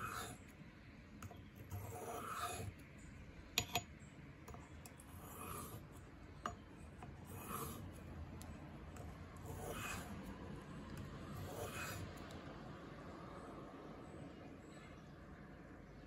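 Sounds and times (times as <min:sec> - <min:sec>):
knife blade rasping on sharpening stone: 0:00.0 - 0:00.4, 0:01.7 - 0:02.7, 0:03.6 - 0:03.8, 0:05.1 - 0:05.8, 0:07.2 - 0:07.8, 0:09.5 - 0:10.1, 0:11.4 - 0:12.1.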